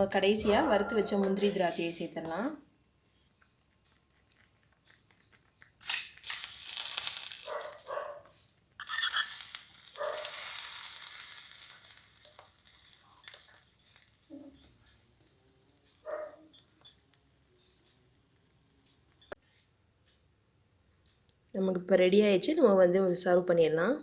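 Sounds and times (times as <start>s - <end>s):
milk pan hissing: 6.2s - 19.4s.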